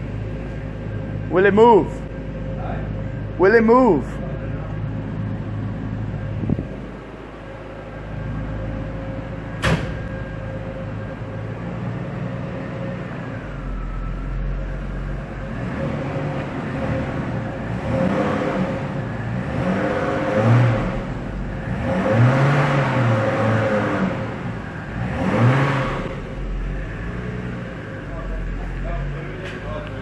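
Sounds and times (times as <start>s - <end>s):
steady whine: 0.0s - 18.0s
car engine running: 0.0s - 30.0s
sharp knock: 9.6s - 10.0s.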